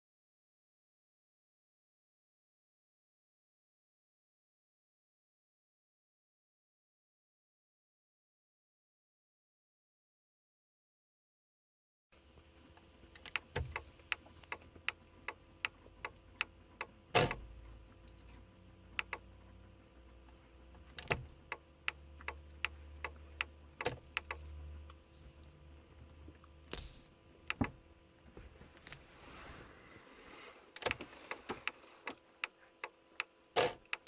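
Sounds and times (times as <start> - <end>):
low hum: 12.2 - 33.2
car indicator ticking: 12.7 - 25.0, 27.4 - 27.8, 30.8 - 34.0.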